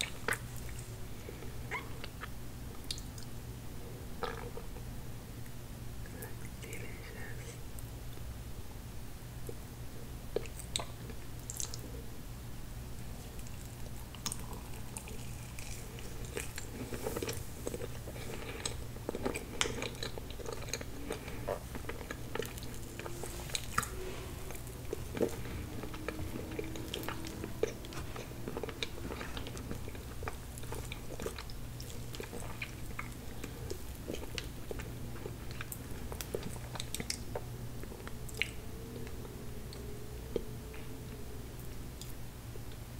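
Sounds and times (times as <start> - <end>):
steady low hum: 0.0 - 42.9
wet chewing sounds: 13.2 - 41.1.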